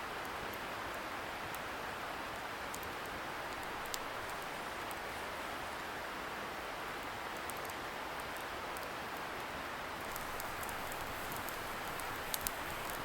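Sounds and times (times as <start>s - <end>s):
distant river hiss: 0.0s - 8.1s, 8.9s - 13.0s
bonfire crackling and popping: 2.4s - 5.0s, 10.0s - 13.0s.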